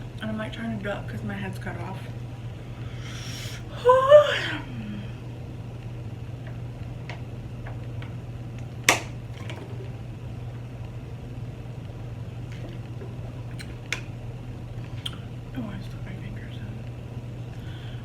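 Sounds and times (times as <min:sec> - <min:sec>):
steady low hum: 0:00.0 - 0:18.0
mouth and utensil clicks: 0:13.5 - 0:14.1, 0:15.0 - 0:15.2.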